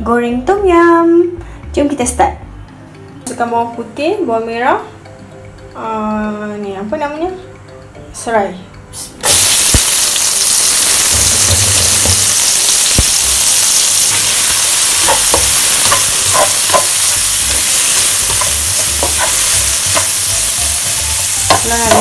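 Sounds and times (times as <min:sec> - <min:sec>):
vegetables sizzling in hot oil: 0:09.2 - 0:22.0
utensil stirring clicks: 0:13.0 - 0:22.0.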